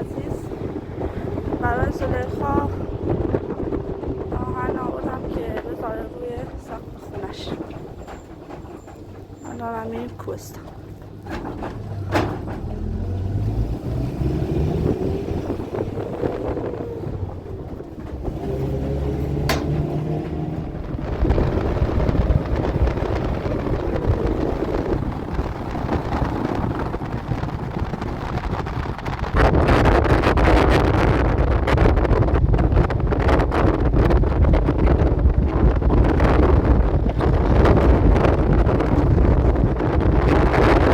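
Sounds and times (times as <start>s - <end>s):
wind buffeting microphone: 0.0s - 40.9s
vehicle engine revving: 10.7s - 29.7s.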